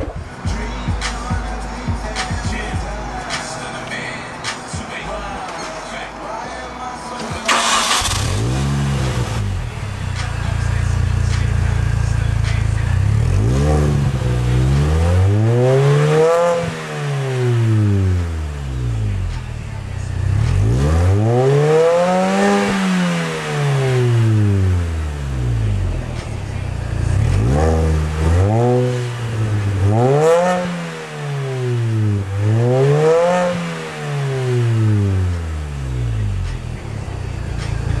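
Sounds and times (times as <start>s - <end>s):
car engine revving and idling: 0.0s - 38.0s.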